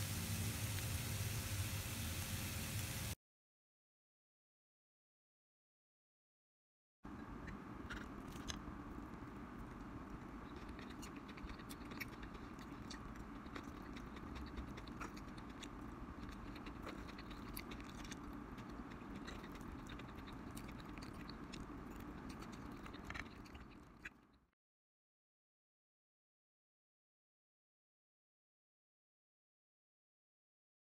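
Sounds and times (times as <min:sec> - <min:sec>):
omelette sizzling in a frying pan: 0:00.0 - 0:03.2.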